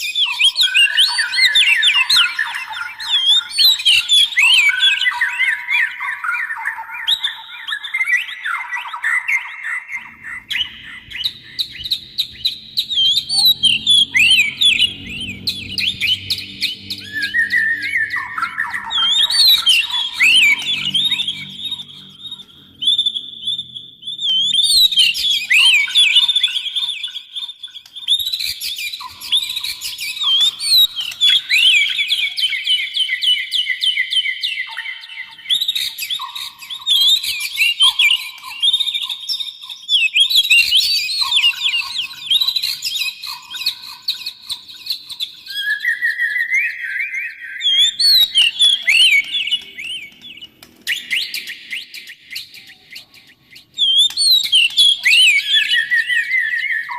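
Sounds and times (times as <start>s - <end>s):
birds singing chirps and trills: 0.0s - 56.9s
steady low whistled notes: 9.9s - 27.0s, 40.5s - 56.9s.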